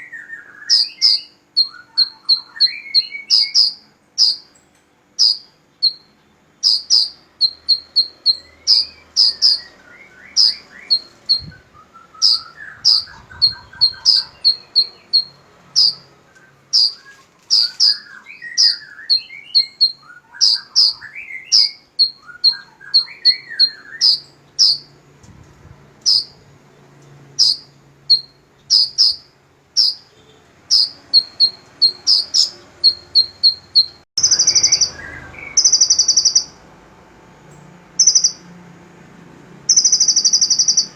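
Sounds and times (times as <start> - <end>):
birds chattering: 0.0 - 25.0, 26.0 - 36.6, 38.0 - 38.5, 39.7 - 40.9
songbirds chirping: 0.0 - 40.9
soft bird warbling: 6.6 - 24.9, 29.8 - 36.5.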